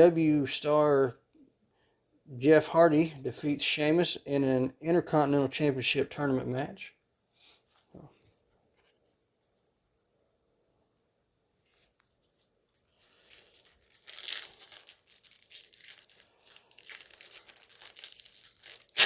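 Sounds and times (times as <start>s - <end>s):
foil wrapper crinkling and tearing: 12.8s - 19.0s.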